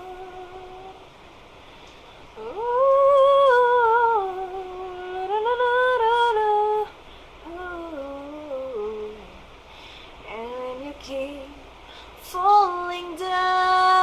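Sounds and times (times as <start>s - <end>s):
woman humming: 0.0s - 1.0s, 2.4s - 9.5s.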